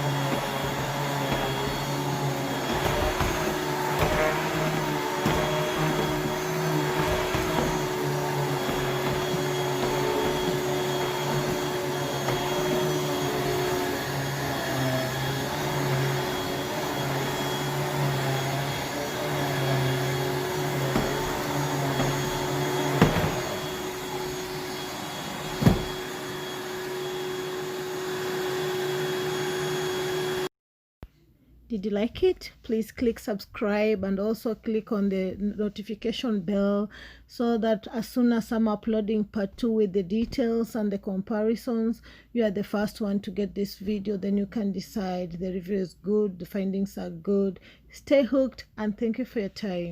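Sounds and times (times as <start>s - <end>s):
vacuum cleaner motor running: 0.0s - 30.5s.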